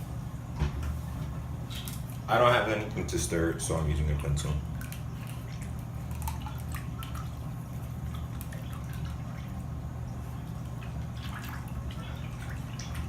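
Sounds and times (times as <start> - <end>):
steady low hum: 0.0 - 13.0
dry ice bubbling in water: 2.9 - 13.0
small pops and drips: 4.1 - 13.0.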